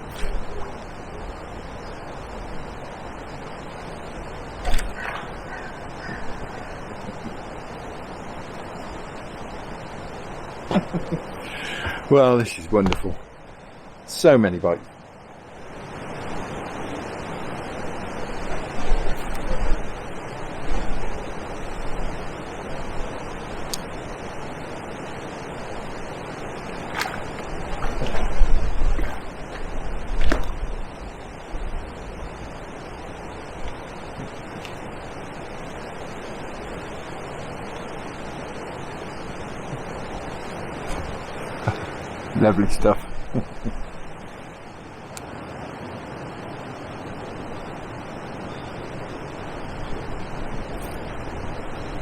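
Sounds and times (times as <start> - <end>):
wind on microphone: 0.0 - 12.1, 15.6 - 44.5
choppy water: 0.0 - 52.0
gusty low rumbles: 27.1 - 32.4.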